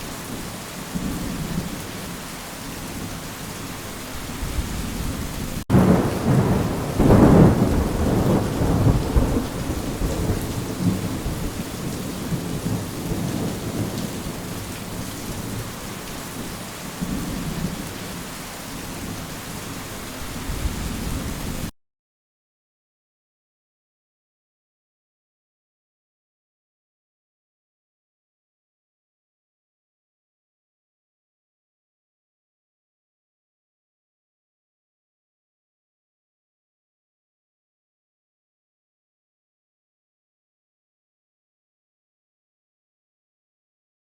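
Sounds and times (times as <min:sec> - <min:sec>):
steady rain: 0:00.0 - 0:21.7
thunder rumbling: 0:04.3 - 0:15.8.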